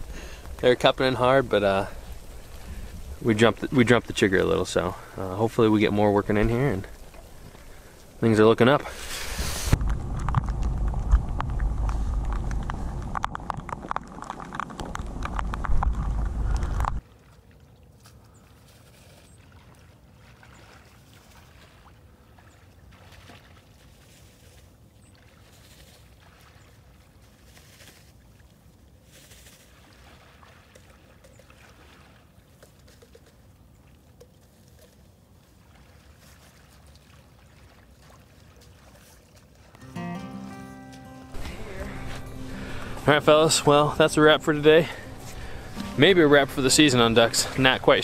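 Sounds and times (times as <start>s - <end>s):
soft water sloshing: 0.0s - 13.0s, 17.0s - 39.8s, 41.3s - 48.0s
wind rumble on microphone: 9.2s - 17.0s.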